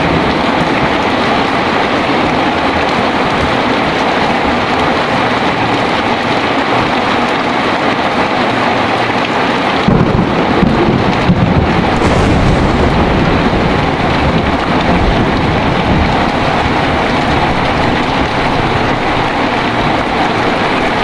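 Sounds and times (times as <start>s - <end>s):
heavy rain falling: 0.0s - 21.0s
low rumble of thunder: 9.9s - 21.0s.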